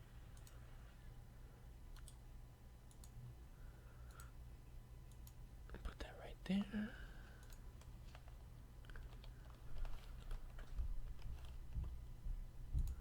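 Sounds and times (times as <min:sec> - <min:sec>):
steady low hum: 0:00.0 - 0:13.0
computer keyboard typing: 0:02.9 - 0:03.2, 0:07.3 - 0:12.0.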